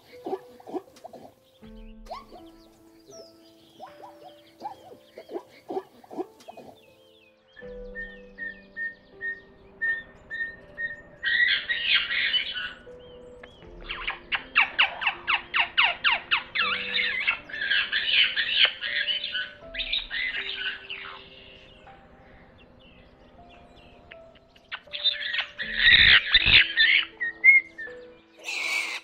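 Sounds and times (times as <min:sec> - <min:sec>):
soft background music: 0:00.0 - 0:29.0
parrot squawking: 0:28.4 - 0:29.0.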